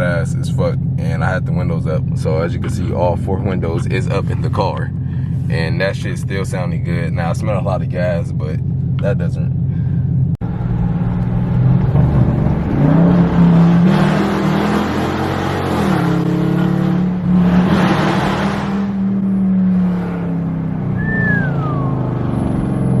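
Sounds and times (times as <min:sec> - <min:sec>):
car engine revving: 0:00.0 - 0:23.0
short falling squeal: 0:20.9 - 0:22.8.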